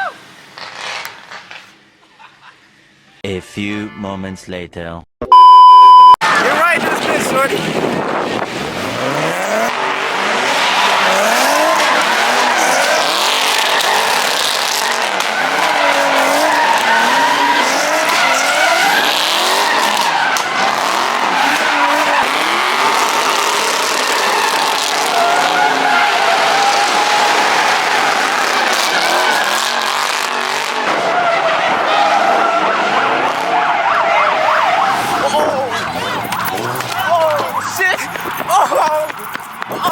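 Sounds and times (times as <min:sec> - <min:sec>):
car engine revving: 0:06.3 - 0:38.5
tyres squealing: 0:10.3 - 0:39.9.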